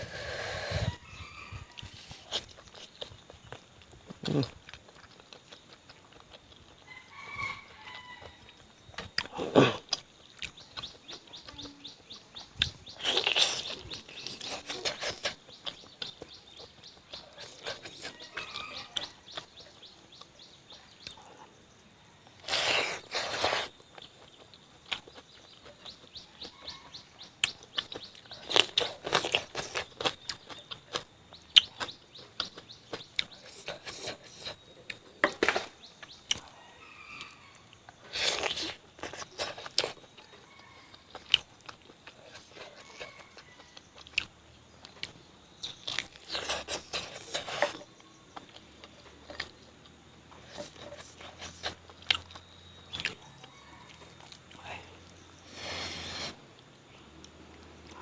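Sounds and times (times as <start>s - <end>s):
birds chirping: 0.0s - 58.0s
chewing and mouth smacks: 1.8s - 6.9s, 8.2s - 11.5s, 12.1s - 20.4s, 22.2s - 36.5s, 37.2s - 54.6s
crunching: 1.8s - 6.9s, 12.6s - 19.5s, 22.3s - 26.6s, 27.4s - 36.5s, 37.2s - 53.2s.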